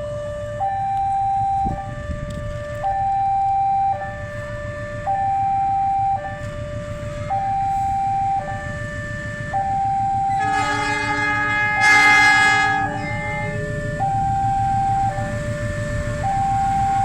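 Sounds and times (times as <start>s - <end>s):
low rumble of moving train: 0.0s - 17.0s
two-tone siren: 0.0s - 17.0s
locomotive horn: 10.2s - 17.0s.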